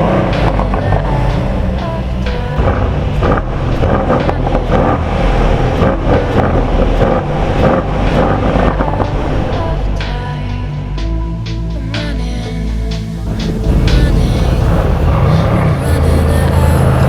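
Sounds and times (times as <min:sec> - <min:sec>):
exhaust pops and cracks: 0:00.0 - 0:09.3
car engine running loudly: 0:00.0 - 0:11.0, 0:13.2 - 0:17.0.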